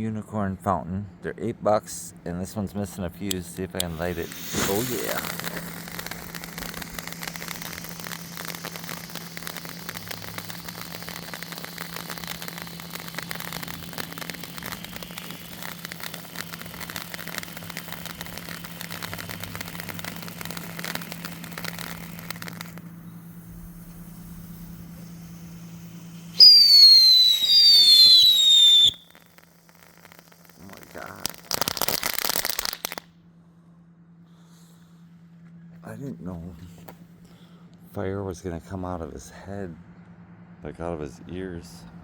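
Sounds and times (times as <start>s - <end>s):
firework fountain crackling: 3.0s - 33.1s
shrill firework whistle: 3.9s - 33.0s.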